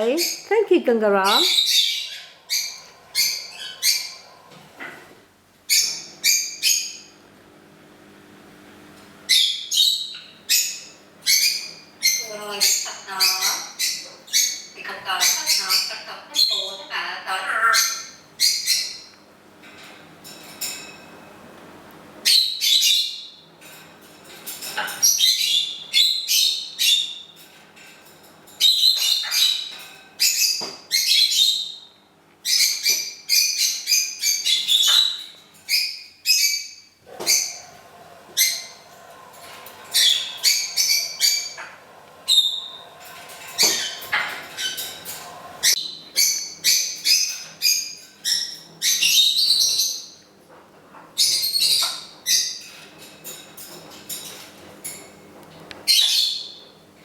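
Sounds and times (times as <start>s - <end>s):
parrot whistling and chirping: 1.4s - 4.3s, 22.2s - 23.4s, 28.6s - 37.7s, 39.8s - 43.0s, 43.6s - 50.2s, 55.8s - 56.6s.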